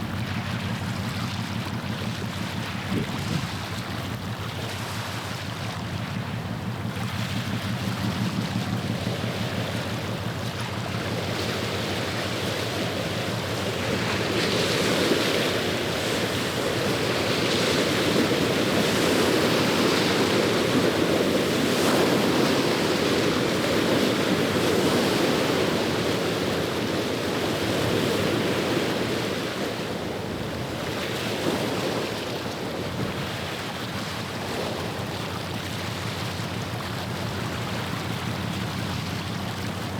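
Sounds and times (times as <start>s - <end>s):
water washing on shore: 8.2s - 39.9s.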